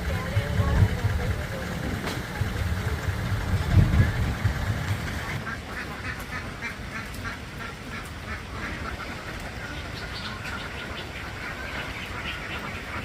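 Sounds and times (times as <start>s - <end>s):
low rumble: 0.0s - 5.4s
ducks quacking: 0.0s - 13.0s.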